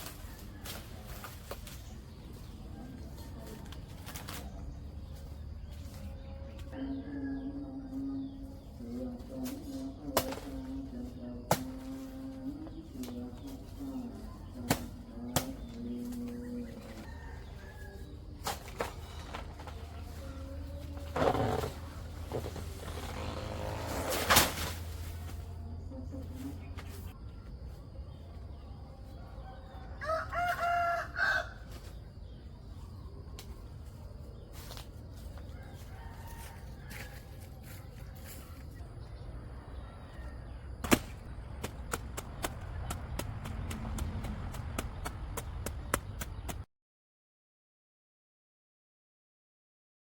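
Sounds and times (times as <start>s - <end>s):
rooster crowing: 17.0s - 18.2s, 29.1s - 31.7s, 35.5s - 37.6s.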